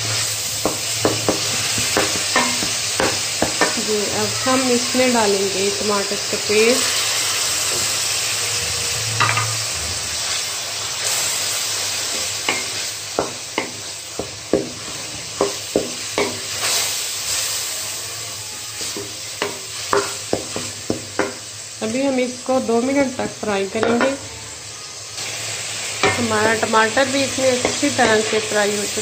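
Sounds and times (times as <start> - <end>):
spoon scraping and knocking pan: 0.0 - 4.0, 9.2 - 9.6, 12.0 - 16.8, 18.8 - 21.5, 23.2 - 24.2, 26.0 - 28.8
food sizzling in hot oil: 0.0 - 29.0.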